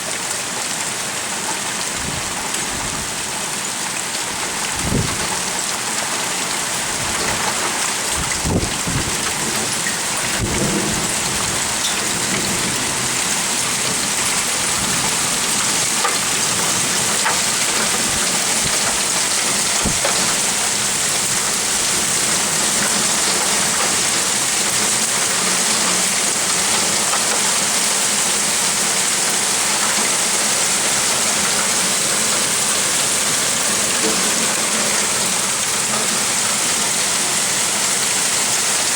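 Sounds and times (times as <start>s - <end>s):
heavy rain pouring: 0.0s - 38.9s
thunder rumbles: 8.3s - 13.3s.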